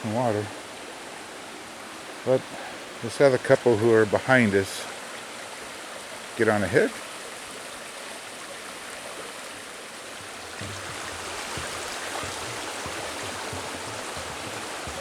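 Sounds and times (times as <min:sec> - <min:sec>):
creek water running: 0:00.0 - 0:15.0
soft low thumps: 0:10.2 - 0:15.0.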